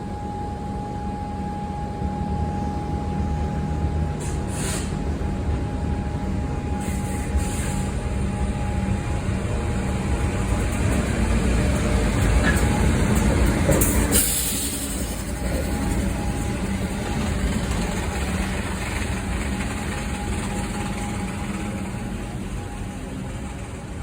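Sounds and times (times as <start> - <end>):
train rumbling by: 0.0 - 24.0
brief hiss: 4.2 - 5.0.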